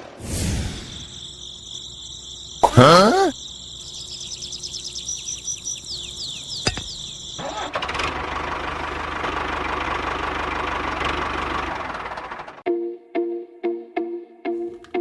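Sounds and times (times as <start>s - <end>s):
high falling chirps: 0.2s - 7.4s
engine running roughly: 7.4s - 12.6s.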